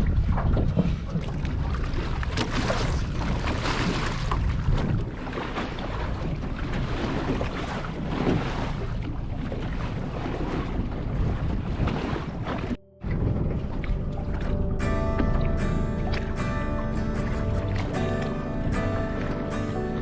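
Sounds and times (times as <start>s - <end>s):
water sloshing against hull: 0.0s - 20.0s
wind buffeting microphone: 0.0s - 20.0s
heavy low rumble: 12.7s - 20.0s.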